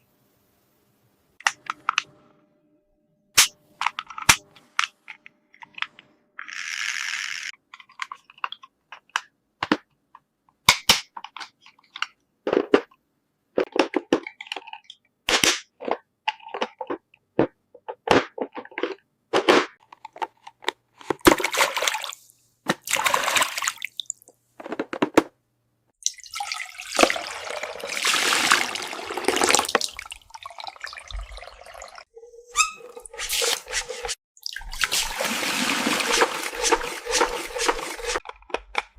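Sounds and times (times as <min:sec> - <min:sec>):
water running: 0:26.0 - 0:38.2.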